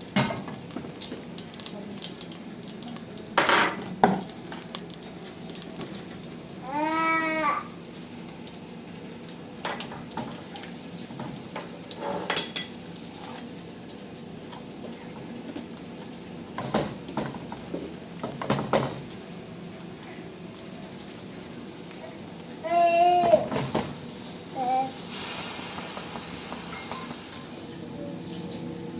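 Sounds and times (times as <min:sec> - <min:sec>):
utensils clinking and scraping: 0:11.9 - 0:12.7.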